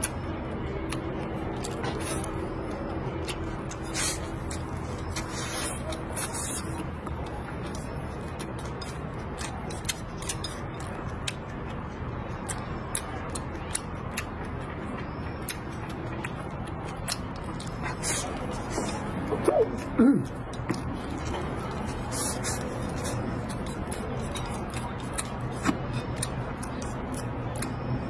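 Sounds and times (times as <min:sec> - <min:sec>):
low background hum: 0:00.0 - 0:28.0
chewing mouth clicks: 0:12.4 - 0:27.9.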